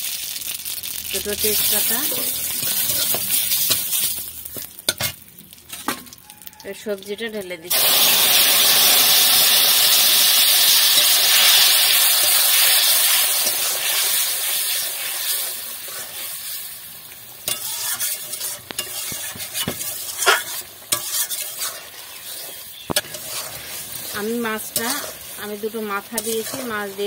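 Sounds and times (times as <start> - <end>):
food hissing in hot oil: 0.0 - 4.5, 7.7 - 27.0
metal spatula scraping pan: 2.0 - 4.2, 17.4 - 27.0.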